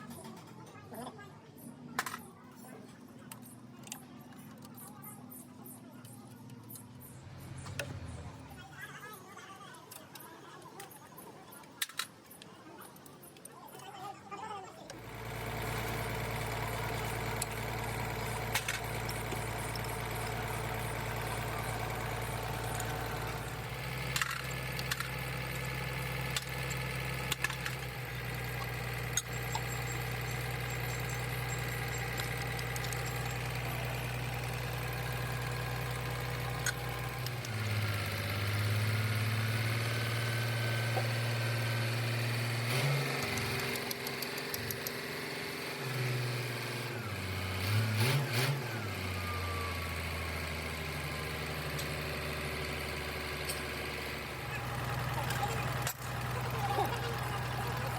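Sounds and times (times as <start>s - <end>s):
engine running: 3.0s - 8.8s, 14.9s - 57.9s
metallic clicks and taps: 43.2s - 45.0s.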